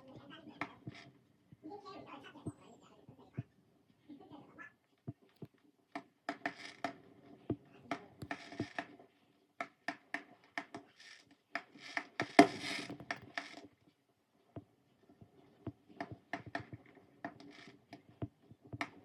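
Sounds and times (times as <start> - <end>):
sharp clicks and knocks: 15.6 - 19.0.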